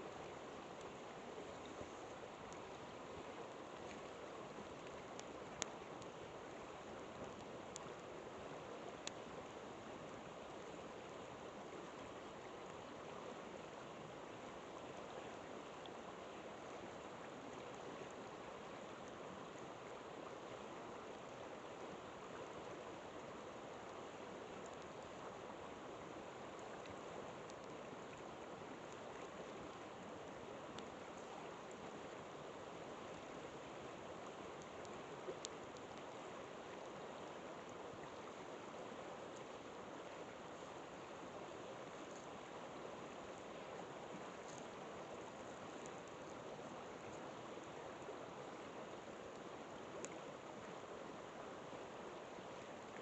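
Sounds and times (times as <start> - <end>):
river water rushing: 0.0 - 53.0
campfire crackling and popping: 9.0 - 9.3.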